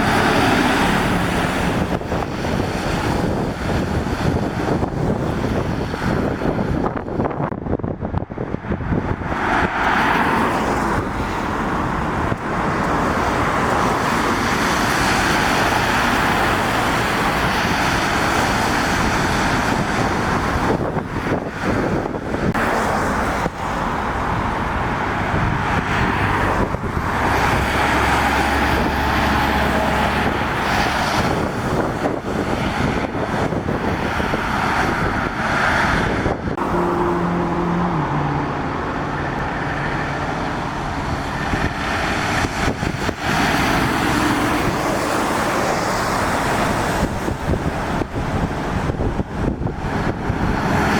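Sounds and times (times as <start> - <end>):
tyres hissing on wet tarmac: 0.0 - 5.1, 9.5 - 21.0, 40.6 - 49.0
vehicles passing on wet road: 0.0 - 50.9.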